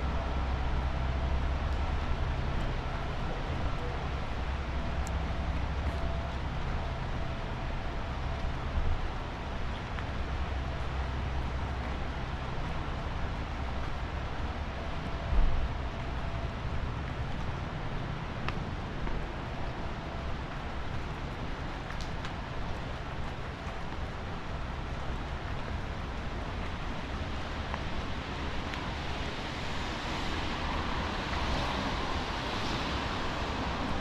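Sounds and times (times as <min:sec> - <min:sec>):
traffic rumble: 0:00.0 - 0:34.0
rain hiss: 0:19.5 - 0:34.0.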